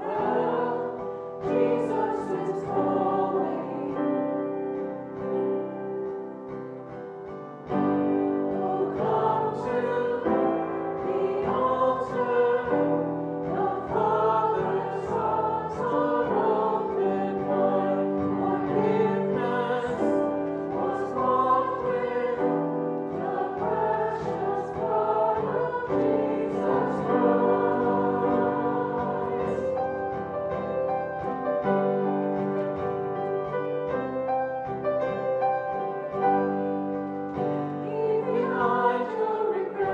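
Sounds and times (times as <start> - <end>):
choir singing a hymn: 0.0 - 6.9, 7.7 - 35.2, 35.8 - 39.9
piano accompaniment: 0.0 - 39.9.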